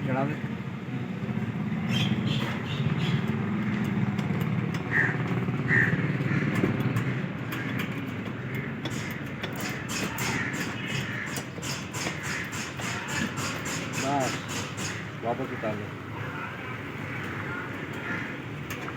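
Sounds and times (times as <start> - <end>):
vehicle engine running: 0.2 - 11.6.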